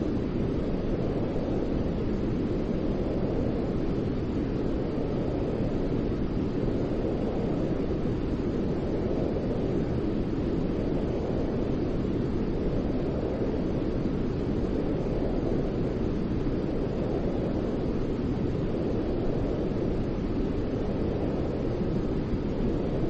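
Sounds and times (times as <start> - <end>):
deep white noise: 0.0 - 23.0.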